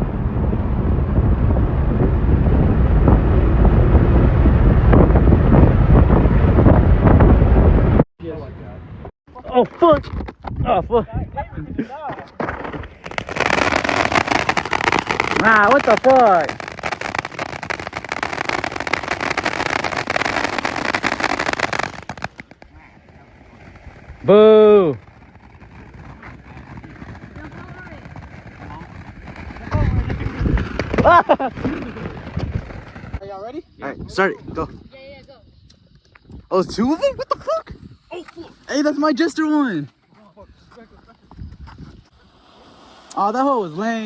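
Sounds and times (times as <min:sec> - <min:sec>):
wind rumble on microphone: 0:00.0 - 0:09.1, 0:13.1 - 0:38.1, 0:41.2 - 0:42.2
fireworks crackling and banging: 0:12.2 - 0:33.2.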